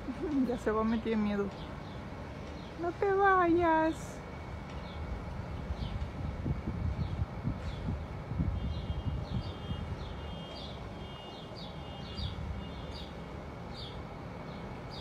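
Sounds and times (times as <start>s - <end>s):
bird chirping: 8.6s - 15.0s.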